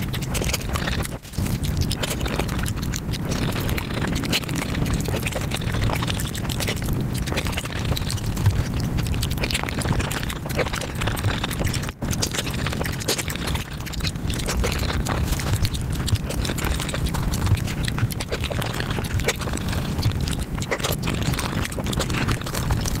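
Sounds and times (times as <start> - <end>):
rapid chewing and mouth smacks: 0.0 - 23.0.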